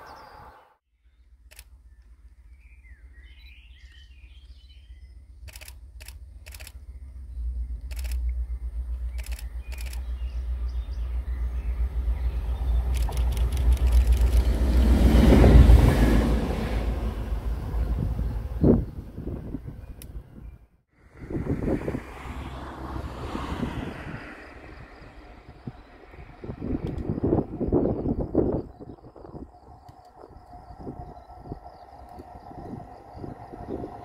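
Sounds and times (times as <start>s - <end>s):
birds chirping: 0.0s - 14.9s
sharp clicks: 1.5s - 1.8s, 5.4s - 6.9s, 7.8s - 8.4s, 9.1s - 10.1s, 12.9s - 14.5s, 26.8s - 27.1s
train passing: 6.2s - 20.4s, 21.0s - 34.0s
wind rumble on microphone: 6.5s - 34.0s.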